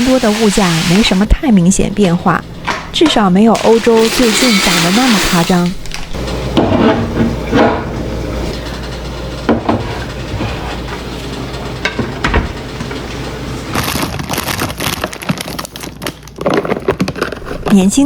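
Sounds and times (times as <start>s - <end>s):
plastic packaging crinkling: 3.6s - 6.2s, 13.7s - 17.6s.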